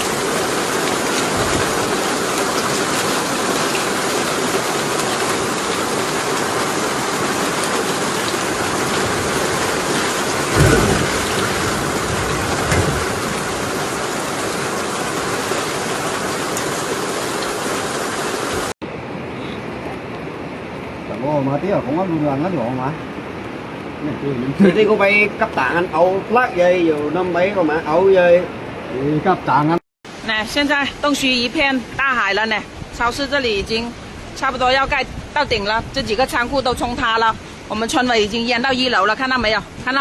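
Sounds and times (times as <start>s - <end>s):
water rushing: 0.0s - 29.5s, 30.1s - 40.0s
low thump: 10.5s - 13.5s.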